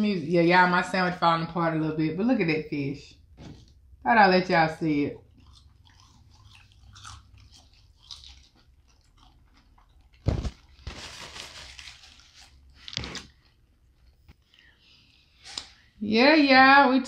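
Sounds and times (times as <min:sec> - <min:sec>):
wet chewing and biting: 0:05.2 - 0:11.0.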